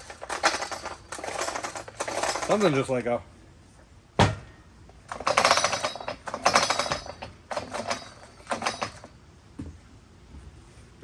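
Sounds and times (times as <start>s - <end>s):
chainsaw recoil starter rattling: 0.0s - 3.0s, 5.0s - 9.1s.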